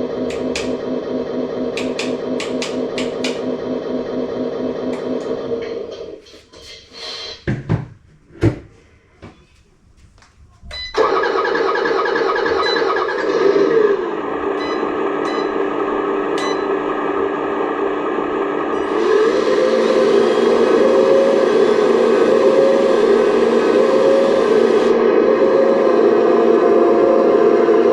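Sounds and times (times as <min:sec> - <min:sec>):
model engine starting and idling: 0:00.0 - 0:06.2, 0:11.0 - 0:27.3
knocks: 0:01.7 - 0:03.5.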